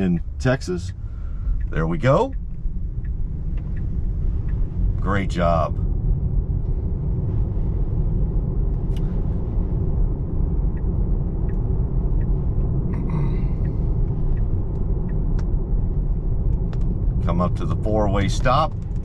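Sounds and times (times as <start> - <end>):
road and tyre rumble: 0.0 - 19.0
faint ticks: 0.9 - 4.7, 10.4 - 15.6.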